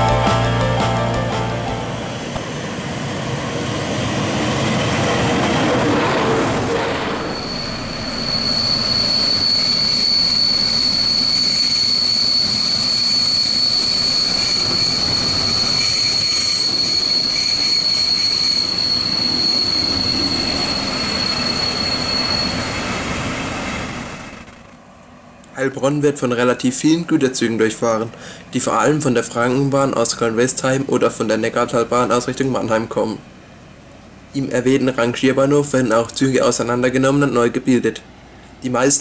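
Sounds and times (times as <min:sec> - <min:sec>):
train rumble: 0:00.0 - 0:39.0
high-pitched wheel squeal: 0:06.1 - 0:24.7.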